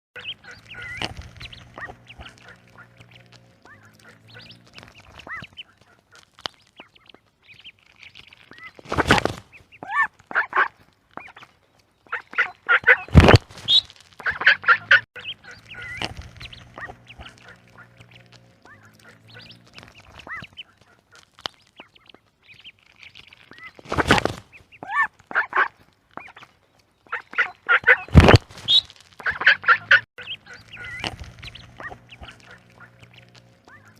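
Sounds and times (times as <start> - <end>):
duck quacking: 0.2 - 7.1, 9.8 - 11.5, 12.1 - 21.3, 24.8 - 26.5, 27.1 - 33.9.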